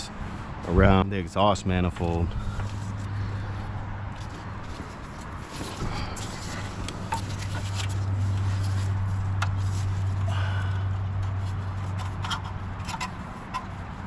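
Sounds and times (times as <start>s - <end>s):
small clicks and scrapes: 4.1s - 10.3s, 11.2s - 14.0s.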